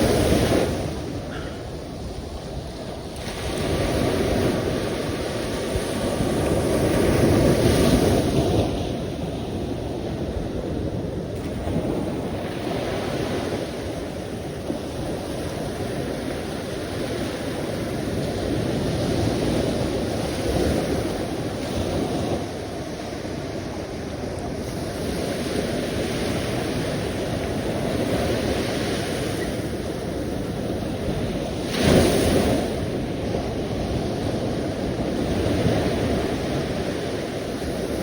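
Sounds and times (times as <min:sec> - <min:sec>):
sea waves washing in: 0:00.0 - 0:38.0.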